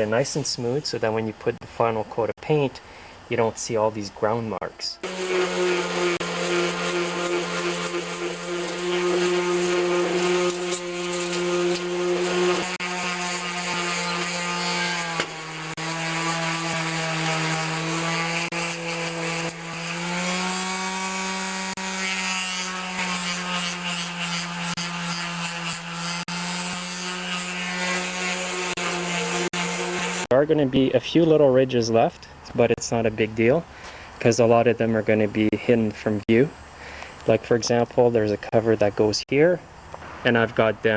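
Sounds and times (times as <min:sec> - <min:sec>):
power sander on metal: 0:05.0 - 0:30.3.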